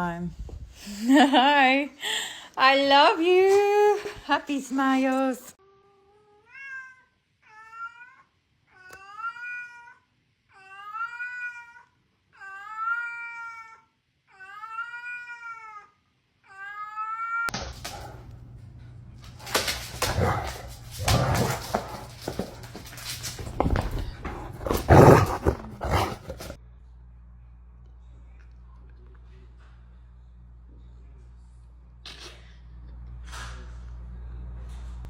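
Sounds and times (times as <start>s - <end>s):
cat meowing: 6.3s - 15.9s.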